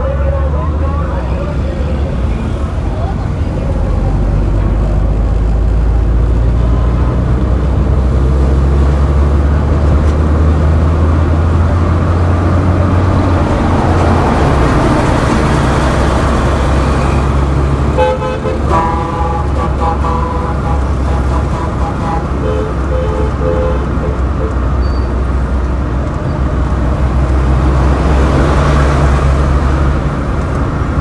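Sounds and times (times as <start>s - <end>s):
traffic engine rumble: 0.0s - 31.0s
vehicle passing: 0.0s - 31.0s
car horns honking: 10.3s - 25.6s.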